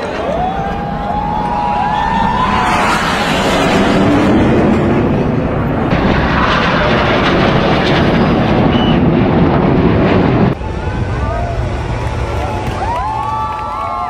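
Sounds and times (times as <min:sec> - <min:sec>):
jets flying past: 0:00.2 - 0:13.6.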